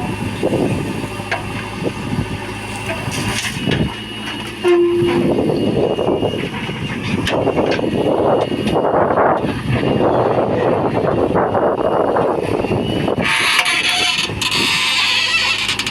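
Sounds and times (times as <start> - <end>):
diesel engines running: 0.0 - 15.9
short horn blast: 4.6 - 5.3.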